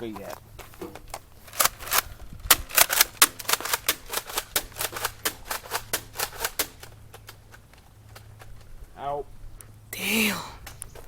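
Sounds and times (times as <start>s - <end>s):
toy blaster mechanism clicking: 1.5s - 6.8s.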